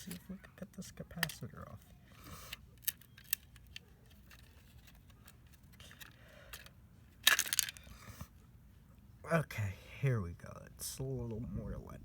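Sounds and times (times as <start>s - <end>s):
soft handling rustles: 0.0s - 8.9s.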